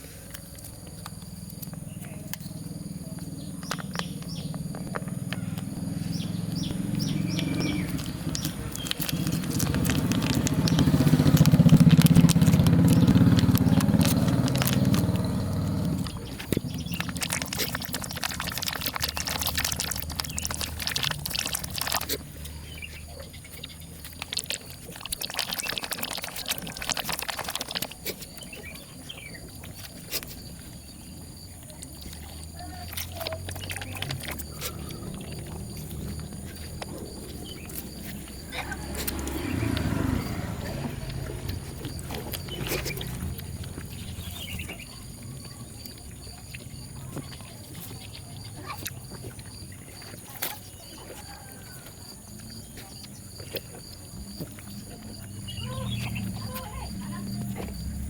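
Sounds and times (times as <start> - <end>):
scratching and rustling clicks: 0.0 - 30.8
vehicle engine running: 0.0 - 58.0.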